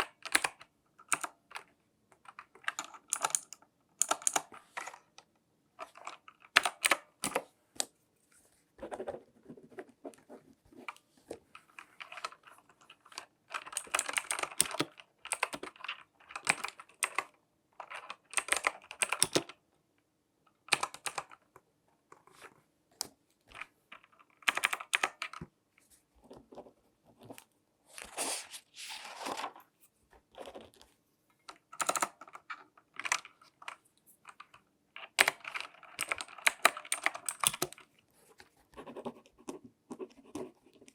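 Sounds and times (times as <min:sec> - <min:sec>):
scratchy glove rustling: 0:28.0 - 0:30.0.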